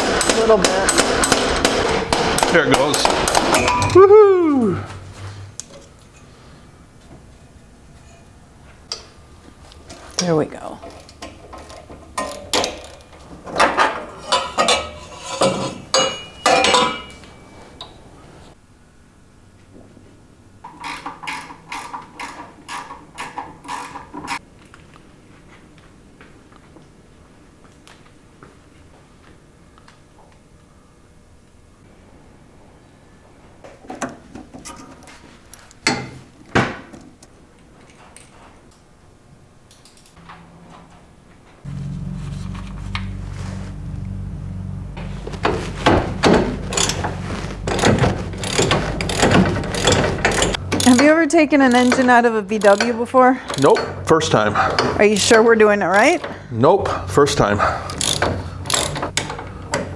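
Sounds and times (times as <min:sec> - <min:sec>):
metal tools clanking: 0:00.0 - 0:04.0, 0:09.9 - 0:18.5, 0:41.7 - 0:56.2, 0:56.8 - 0:59.9.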